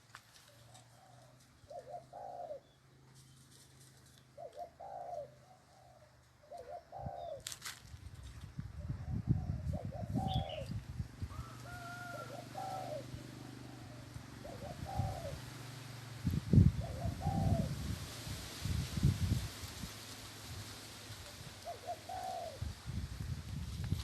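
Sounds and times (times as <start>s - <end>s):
dove cooing: 0.5s - 2.8s, 4.3s - 7.5s, 8.8s - 16.0s, 16.6s - 18.0s, 21.3s - 22.8s.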